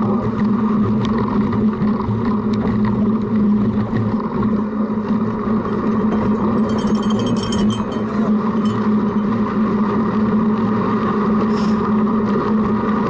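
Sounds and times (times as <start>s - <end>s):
bike tyres rolling: 0.0s - 13.0s
wind noise: 0.0s - 13.0s
bike clicks and rattles: 0.1s - 10.0s.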